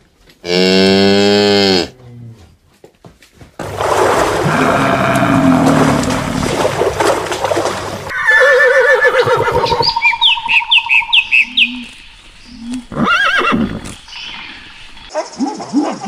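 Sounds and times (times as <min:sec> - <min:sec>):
horse whinnying: 0:04.4 - 0:06.3, 0:08.1 - 0:09.9, 0:12.9 - 0:13.8.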